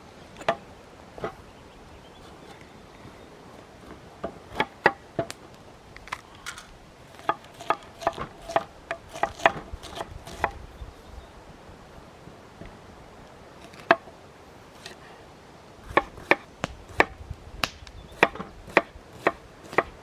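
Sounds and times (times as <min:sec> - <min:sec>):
knife chopping vegetables: 0:07.2 - 0:10.6.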